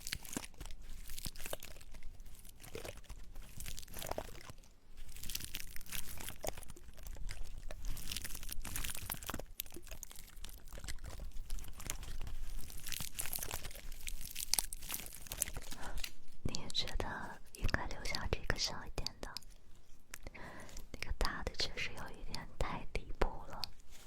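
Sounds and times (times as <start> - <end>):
pine cones crunching: 0.0 - 16.7.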